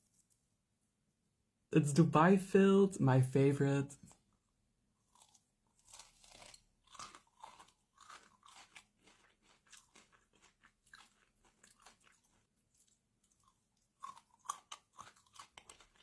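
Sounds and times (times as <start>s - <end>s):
crunching and chewing: 4.0s - 16.0s.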